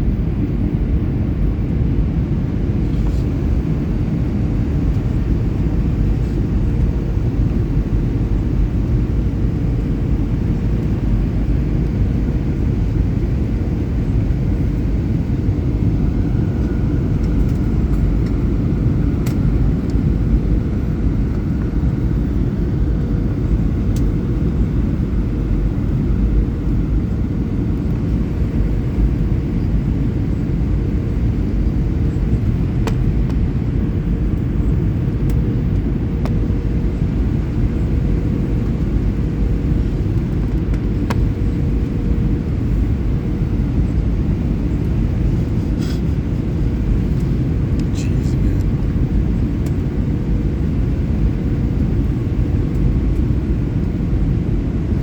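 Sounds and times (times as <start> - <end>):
faint steady hum: 0.0 - 55.0
jet airliner rumble: 0.0 - 55.0.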